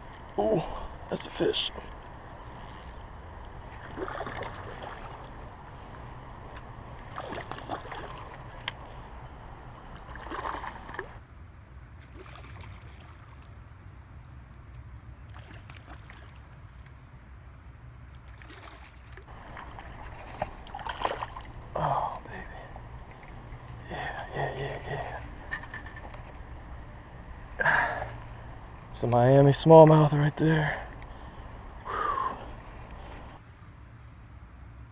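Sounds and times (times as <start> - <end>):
flowing creek water: 11.8 - 17.2, 18.0 - 22.5
fish splashing: 12.0 - 17.2, 18.1 - 19.9.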